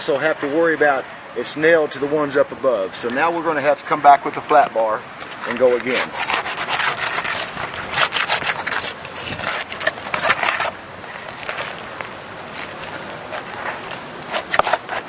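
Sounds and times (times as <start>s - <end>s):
flat bar scraping under shingles: 3.0s - 11.8s, 12.6s - 15.0s.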